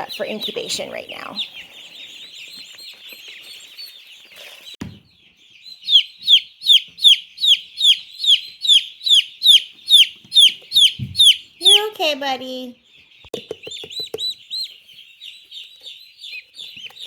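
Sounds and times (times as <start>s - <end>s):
chicks peeping: 0.0s - 17.0s
chick giving loud peeps: 5.6s - 12.0s.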